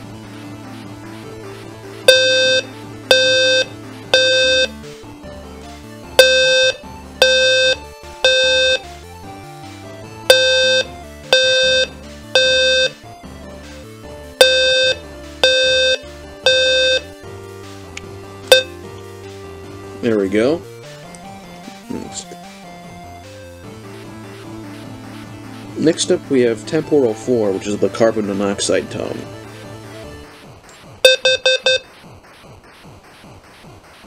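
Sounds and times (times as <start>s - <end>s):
fire alarm horn beeping: 2.1s - 4.7s, 6.2s - 8.9s, 10.3s - 13.0s, 14.4s - 17.1s, 18.5s - 18.7s, 31.0s - 31.8s.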